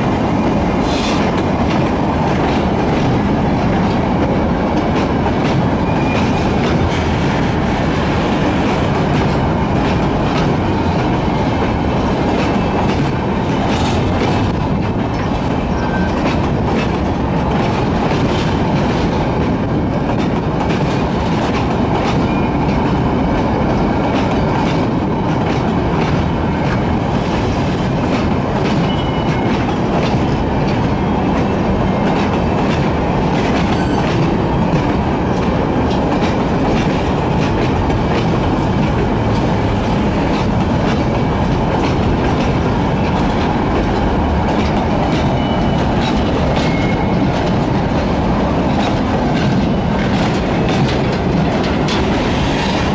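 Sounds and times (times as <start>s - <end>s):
steel wheels rumbling on rail: 0.0s - 52.9s
wheels clattering over rail joints: 27.4s - 52.9s.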